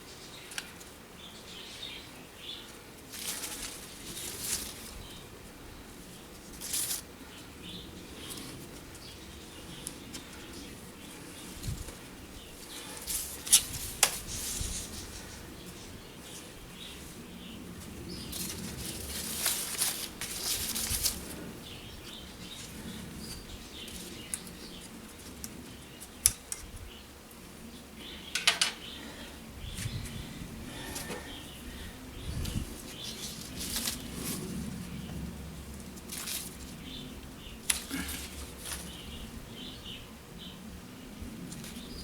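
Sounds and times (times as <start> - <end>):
twigs and foliage rustling: 0.2 - 40.0
pruning shears snipping: 13.0 - 14.6, 37.6 - 39.0.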